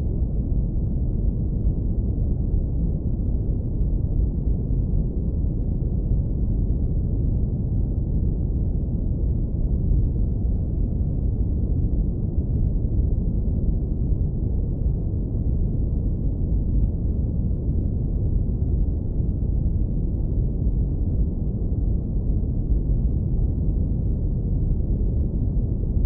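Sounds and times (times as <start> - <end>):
deep low brown noise rumble: 0.0 - 26.0.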